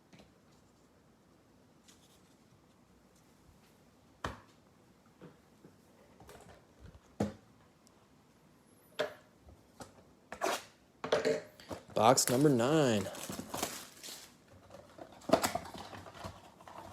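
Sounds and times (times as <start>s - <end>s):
soft rustling of packaging: 0.3s - 3.9s, 11.8s - 16.9s.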